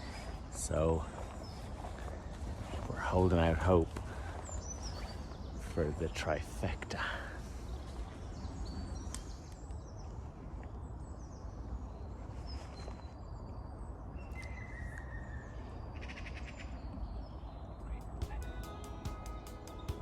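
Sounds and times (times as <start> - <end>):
birds chirping and whistling: 4.2 - 5.8.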